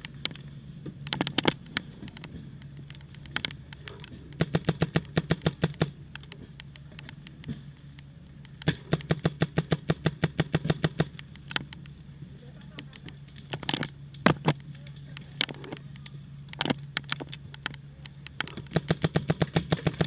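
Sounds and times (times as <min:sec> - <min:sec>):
paintball markers firing: 0:02.8 - 0:07.6, 0:08.5 - 0:11.8, 0:18.3 - 0:20.0.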